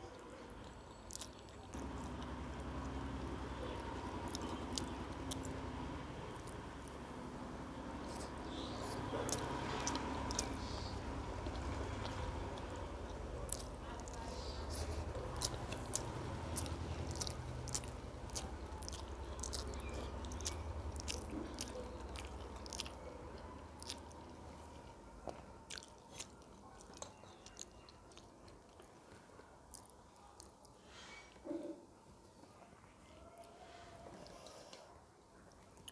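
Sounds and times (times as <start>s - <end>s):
person chewing food: 0.1s - 30.8s, 33.4s - 35.9s
low hum: 1.8s - 24.6s.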